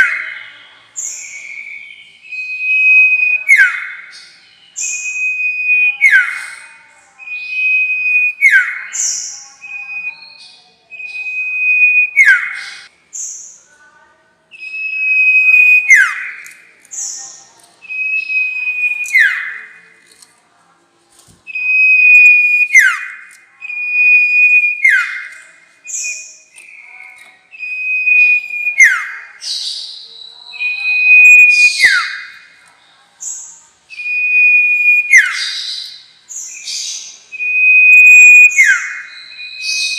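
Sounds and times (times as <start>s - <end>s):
songbird whistling call: 0.0s - 13.6s, 14.5s - 19.8s, 21.5s - 32.5s, 33.2s - 39.9s.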